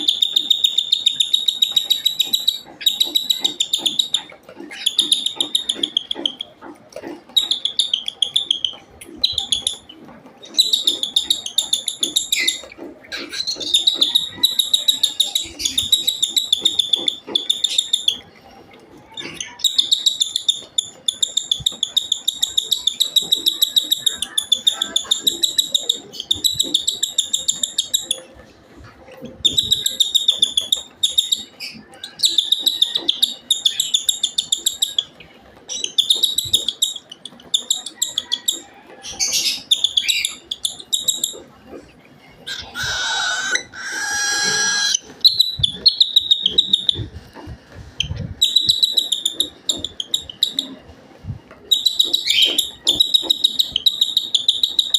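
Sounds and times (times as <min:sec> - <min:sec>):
baby bird begging chirps: 0:42.5 - 0:47.0.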